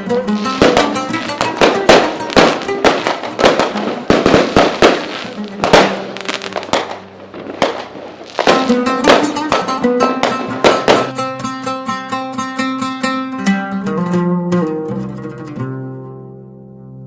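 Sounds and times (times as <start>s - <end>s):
guitar music: 0.0s - 17.0s
fireworks banging: 0.2s - 11.5s.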